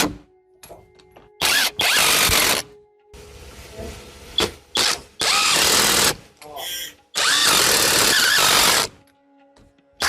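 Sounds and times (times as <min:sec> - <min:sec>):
power tool bursts: 0:01.4 - 0:02.7, 0:04.7 - 0:06.2, 0:07.2 - 0:08.9.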